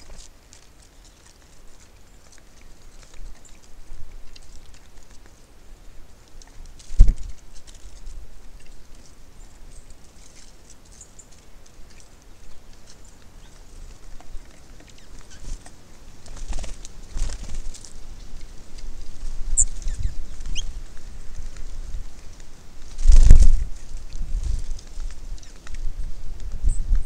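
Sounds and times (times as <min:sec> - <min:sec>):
birds pecking and scratching: 0:00.0 - 0:27.0
wind rumble on microphone: 0:05.9 - 0:10.0, 0:16.4 - 0:27.0
high bird chirps: 0:19.6 - 0:20.7.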